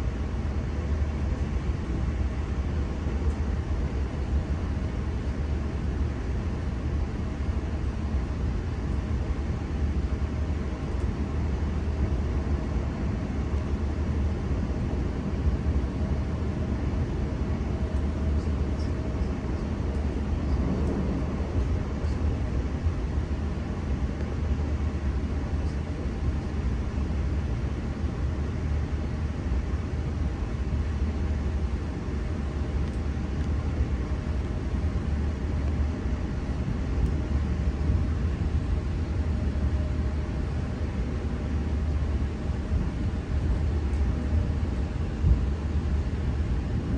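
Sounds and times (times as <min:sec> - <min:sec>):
faint steady hum: 0:00.0 - 0:46.9
electric train rumbling: 0:18.2 - 0:23.8.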